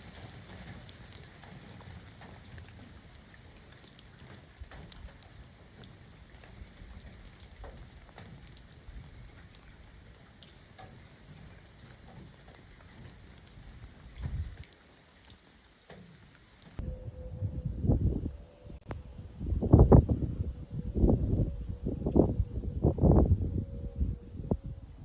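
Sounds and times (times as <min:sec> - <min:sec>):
rain falling steadily: 0:00.0 - 0:16.8
single raindrops ticking: 0:00.0 - 0:16.8
low rumbling: 0:16.8 - 0:25.0.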